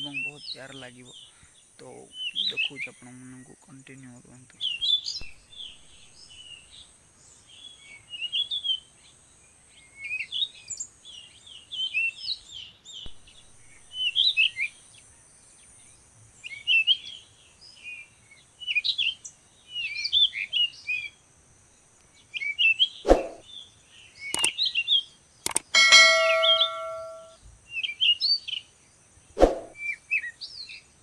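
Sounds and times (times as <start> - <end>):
birds chirping: 0.0 - 30.8
sharp click: 24.4 - 24.6, 25.5 - 27.3.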